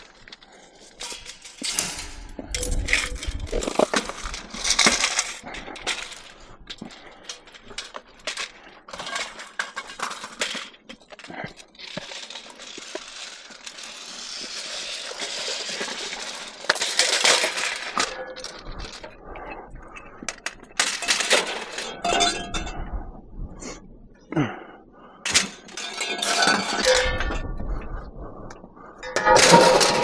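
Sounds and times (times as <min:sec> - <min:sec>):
scrap metal clanking: 0:00.0 - 0:19.0, 0:25.3 - 0:27.3, 0:29.0 - 0:30.0.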